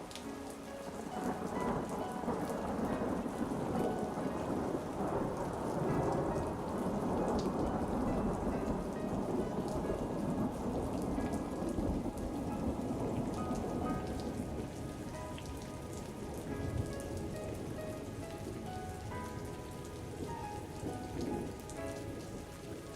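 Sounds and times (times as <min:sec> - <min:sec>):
faint musical notes: 0:00.0 - 0:22.9
steady rain: 0:00.0 - 0:22.9
thunder rumbling: 0:00.9 - 0:22.9.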